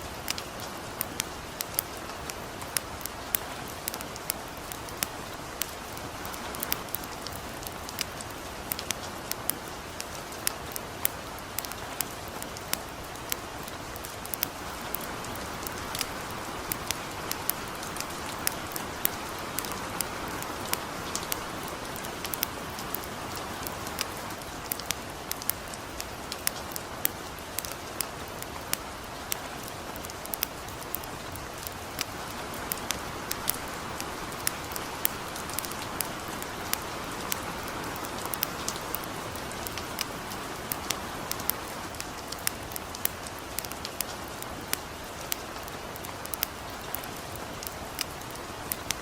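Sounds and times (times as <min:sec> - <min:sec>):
light rain hiss: 0:00.0 - 0:49.0
campfire crackling and popping: 0:00.1 - 0:49.0.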